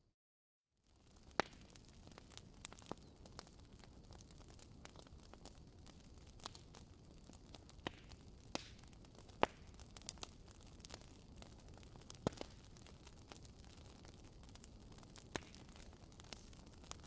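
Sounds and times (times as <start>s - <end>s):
firewood popping and snapping: 1.0s - 17.0s.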